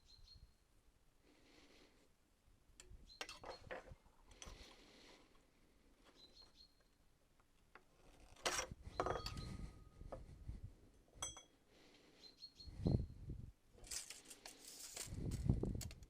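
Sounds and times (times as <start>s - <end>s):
faint bird chirps: 0.0s - 0.6s, 6.0s - 7.0s, 12.1s - 13.3s
steel rebar clinking on metal: 2.8s - 4.8s, 8.4s - 9.7s, 11.2s - 11.6s.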